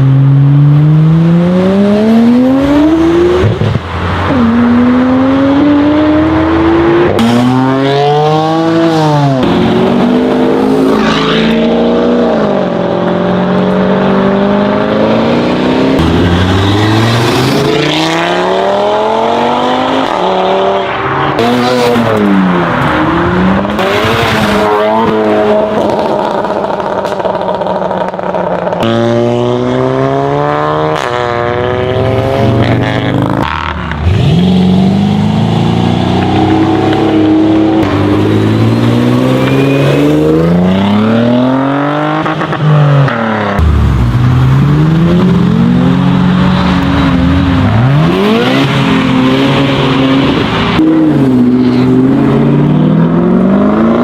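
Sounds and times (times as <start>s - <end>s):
car engines revving and accelerating: 0.0s - 54.0s
cars sweeping past: 0.4s - 54.0s.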